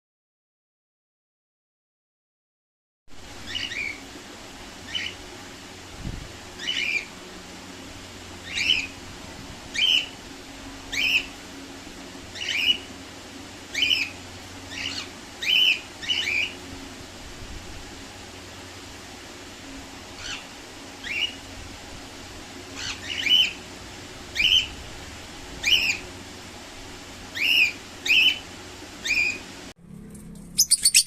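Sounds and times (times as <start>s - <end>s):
pet bird chirping: 3.4s - 4.0s, 9.7s - 10.1s, 10.9s - 11.3s, 14.7s - 16.6s, 27.4s - 28.4s, 30.4s - 31.0s.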